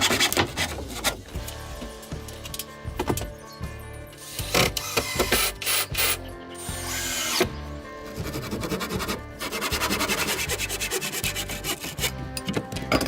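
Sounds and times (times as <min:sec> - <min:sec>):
background music: 0:00.0 - 0:13.0
hand tool rasping on wood: 0:08.2 - 0:12.2.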